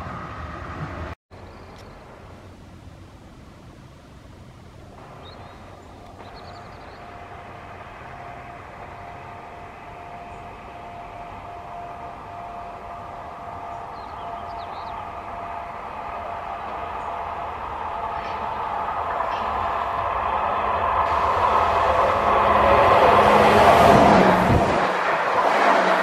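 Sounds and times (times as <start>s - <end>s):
electric train approaching: 0.0s - 26.0s
train whine: 0.0s - 26.0s
birds chirping: 4.9s - 21.3s.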